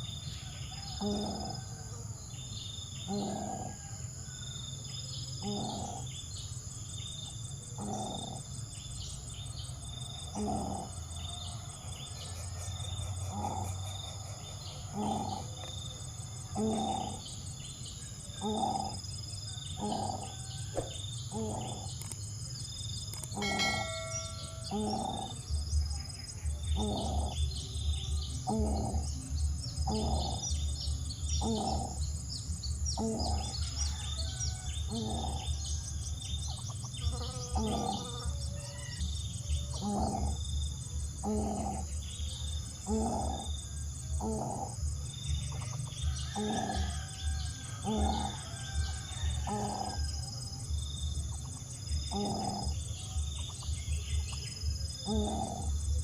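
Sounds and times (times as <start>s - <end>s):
small birds chirping: 0.0s - 56.0s
low-pitched bird calls: 23.1s - 32.2s, 32.9s - 40.4s, 51.2s - 54.4s.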